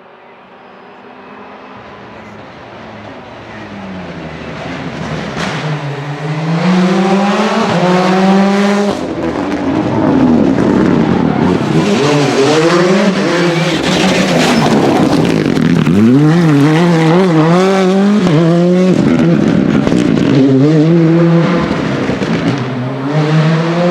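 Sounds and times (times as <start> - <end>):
rally car engine accelerating: 0.0 - 23.9.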